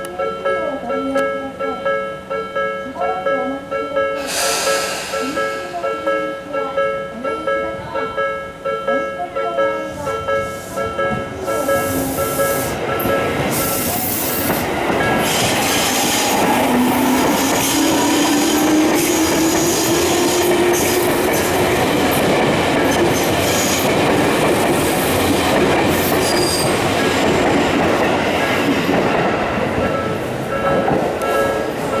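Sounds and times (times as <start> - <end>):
wheels rumbling on rail: 9.9 - 32.0.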